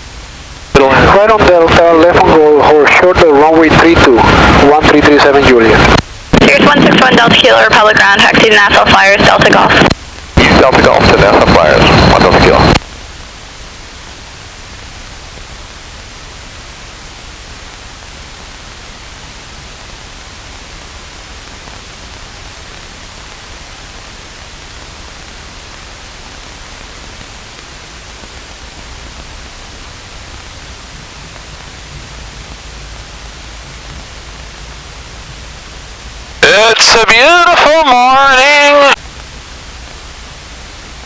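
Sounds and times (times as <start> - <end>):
radio intercom hiss: 0.0 - 41.0
low engine hum: 12.8 - 36.4.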